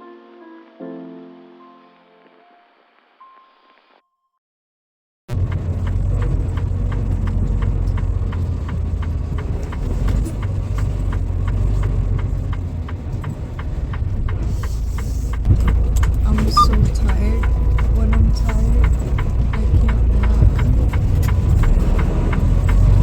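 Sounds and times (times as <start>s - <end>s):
truck engine rumble: 5.3s - 23.0s
regular ticking: 5.4s - 23.0s.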